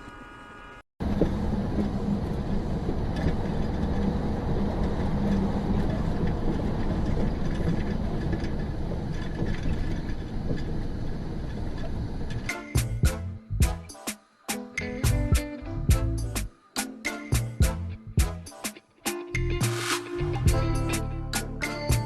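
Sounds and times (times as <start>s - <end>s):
moving vehicle running noise: 1.0s - 12.5s.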